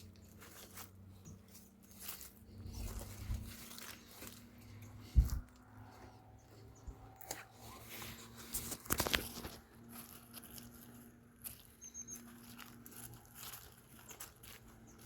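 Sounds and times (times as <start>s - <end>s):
small crackles and crunches: 0.0s - 6.1s, 7.1s - 15.0s.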